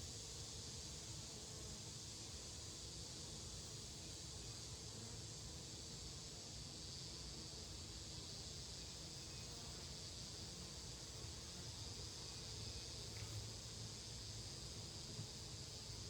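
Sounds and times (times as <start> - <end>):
insect hiss: 0.0 - 16.0.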